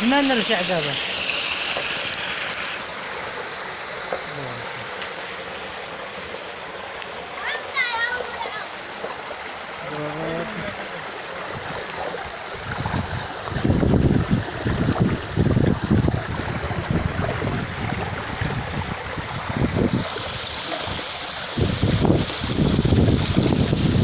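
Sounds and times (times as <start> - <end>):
stream water running: 0.0 - 24.0
wind buffeting microphone: 11.5 - 24.0.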